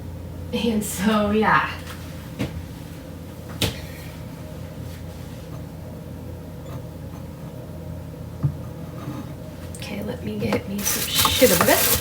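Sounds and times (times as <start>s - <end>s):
steady low hum: 0.0s - 12.0s
kitchen items clicking: 10.8s - 12.0s.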